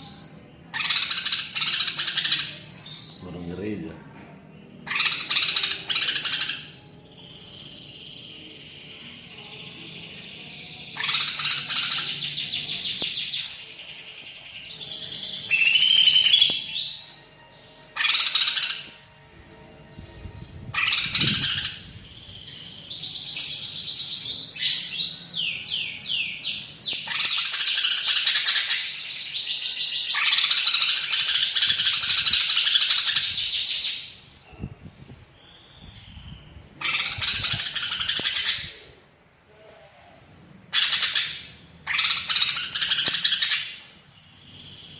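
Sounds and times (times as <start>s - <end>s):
bird singing chattering trills: 20.4s - 34.7s.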